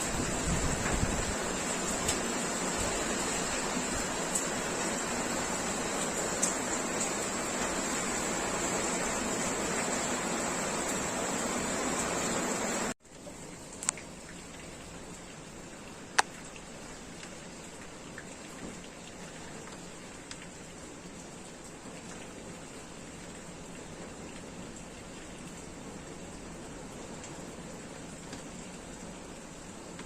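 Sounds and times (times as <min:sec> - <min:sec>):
rain falling: 0:00.0 - 0:30.0
sharp water drips: 0:13.7 - 0:23.2.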